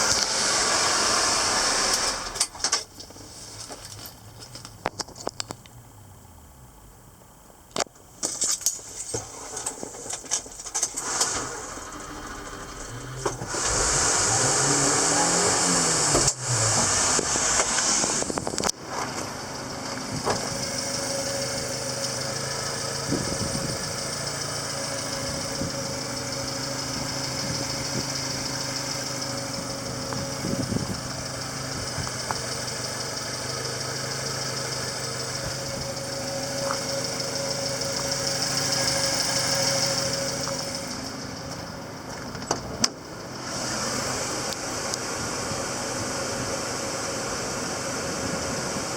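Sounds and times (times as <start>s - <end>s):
hissing rush: 0.0s - 2.4s, 11.0s - 18.6s
truck engine idling: 8.9s - 48.9s.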